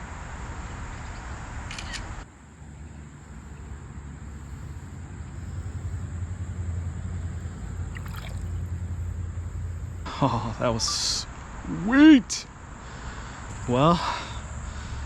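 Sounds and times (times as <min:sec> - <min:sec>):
creek water rushing: 0:04.5 - 0:09.9.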